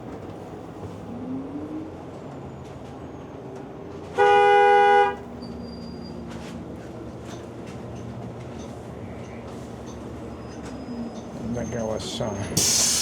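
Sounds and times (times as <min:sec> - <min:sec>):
two-tone vehicle horn honk: 0:04.2 - 0:05.2.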